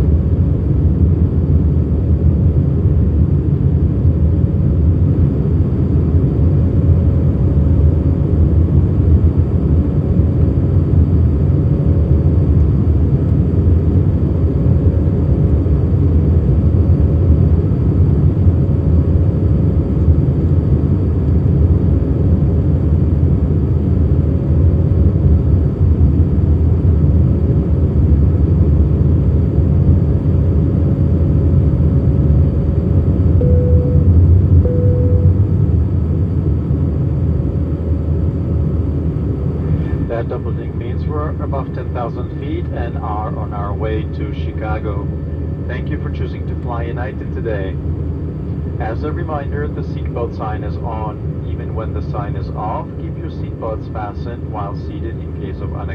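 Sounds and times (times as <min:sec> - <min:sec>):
engine and airflow rumble: 0:00.0 - 0:55.9
faint steady tone: 0:33.4 - 0:35.6.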